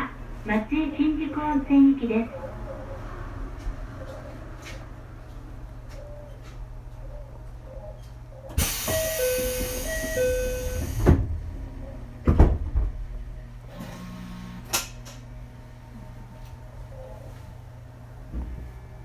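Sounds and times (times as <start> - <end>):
train doors thudding shut: 8.6 - 11.5, 12.2 - 13.0
two-note door chime: 8.9 - 10.9.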